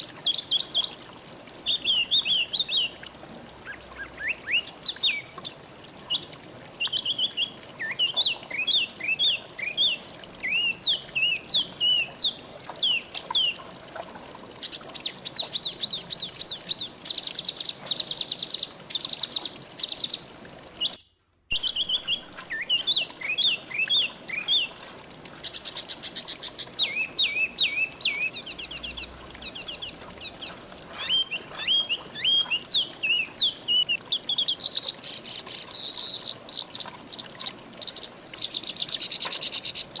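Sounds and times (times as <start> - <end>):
songbird chirps and trills: 1.6 - 13.7, 14.6 - 24.8, 25.4 - 40.0.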